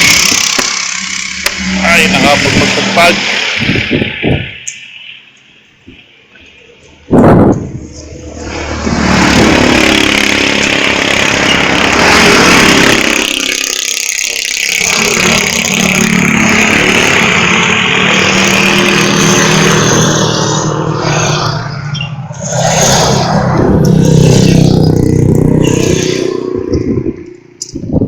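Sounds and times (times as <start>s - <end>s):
vehicle engine running: 0.0s - 4.6s, 7.6s - 26.0s
road noise: 0.0s - 28.0s
wind noise: 1.8s - 4.8s, 5.7s - 10.3s, 18.2s - 28.0s.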